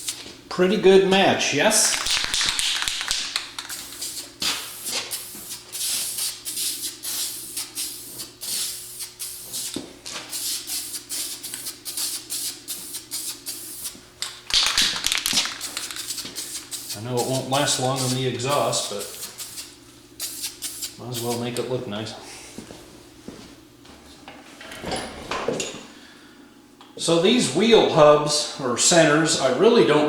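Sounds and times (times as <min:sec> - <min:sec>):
spray can ball rattling: 0:01.8 - 0:21.4
spray paint hissing: 0:01.9 - 0:21.4.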